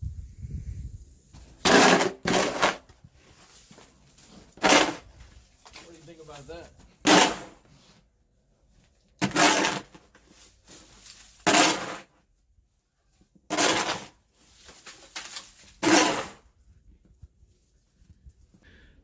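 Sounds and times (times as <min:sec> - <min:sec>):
shovel scraping snow and ice: 0:01.4 - 0:08.0, 0:09.2 - 0:12.2, 0:13.5 - 0:16.5.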